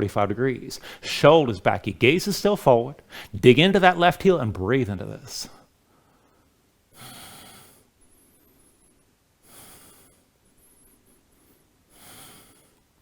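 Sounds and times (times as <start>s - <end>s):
person breathing slowly: 0.8s - 1.1s, 3.0s - 3.4s, 5.9s - 12.9s.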